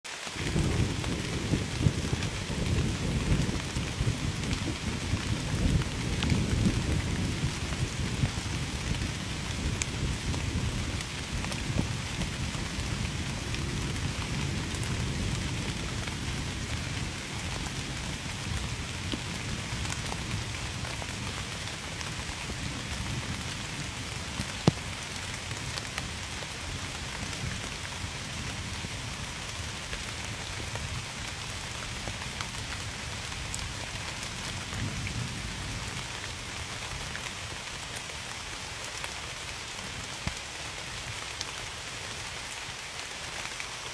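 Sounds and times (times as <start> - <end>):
steady rain: 0.0 - 43.9
low rumble of thunder: 0.4 - 37.2
raindrop hits: 24.3 - 26.3.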